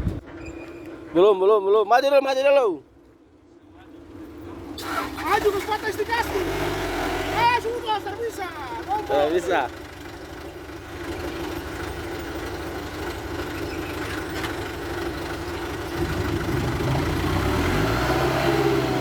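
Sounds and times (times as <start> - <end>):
diesel truck engine running: 4.4 - 19.0.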